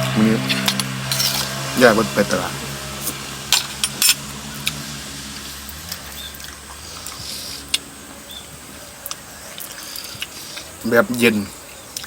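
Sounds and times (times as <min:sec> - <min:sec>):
steady low hum: 0:00.0 - 0:10.8
chewing clicks and smacks: 0:09.0 - 0:10.8.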